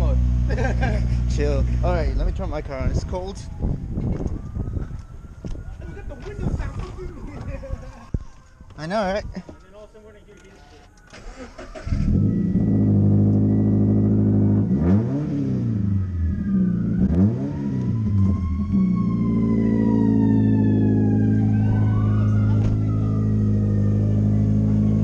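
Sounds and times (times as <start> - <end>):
car engine idling and revving: 0.0 - 2.9, 11.2 - 25.0.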